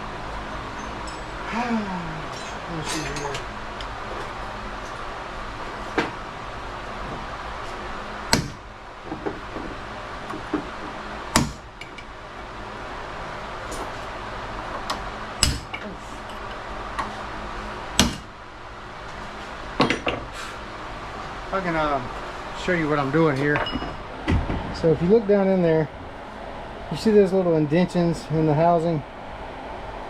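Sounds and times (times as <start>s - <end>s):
hammer striking metal punch: 8.3s - 8.7s, 11.4s - 12.0s, 15.4s - 15.8s, 18.0s - 18.3s.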